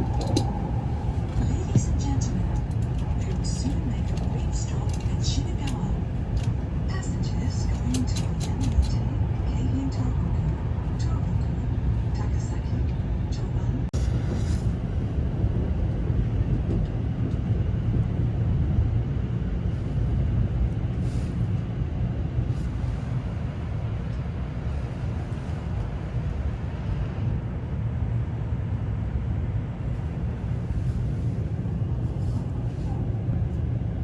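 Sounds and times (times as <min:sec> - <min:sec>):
train rumbling: 0:00.0 - 0:34.0.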